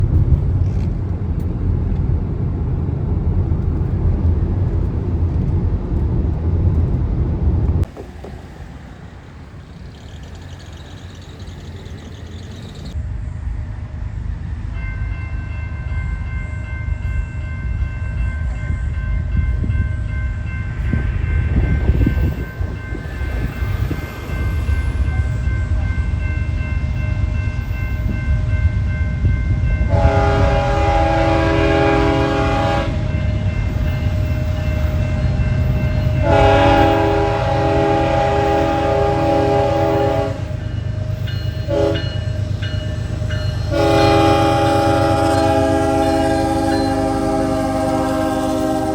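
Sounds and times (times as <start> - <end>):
freight train rumble: 0.0 - 48.9
locomotive horn chord: 29.8 - 33.5, 36.0 - 40.8, 41.6 - 42.2, 43.6 - 48.9.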